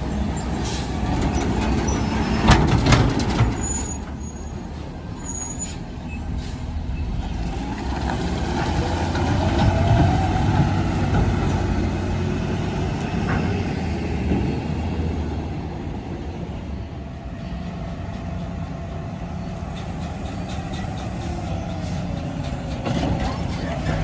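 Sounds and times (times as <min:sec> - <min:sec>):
garbage truck diesel engine running: 0:17.6 - 0:24.0.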